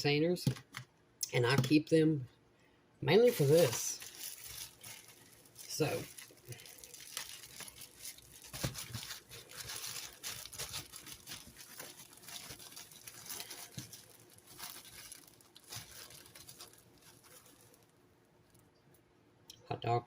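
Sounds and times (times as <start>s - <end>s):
plastic bag crinkling: 3.1s - 18.6s.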